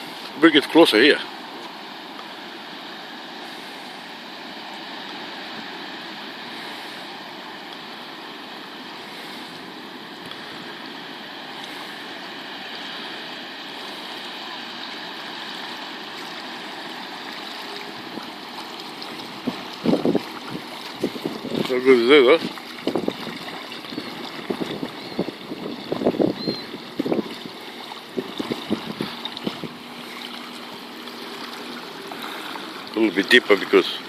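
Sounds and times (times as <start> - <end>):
small waves on a lake: 0.0 - 34.0
faint steady hum: 1.1 - 34.0
wind rushing: 19.3 - 21.8.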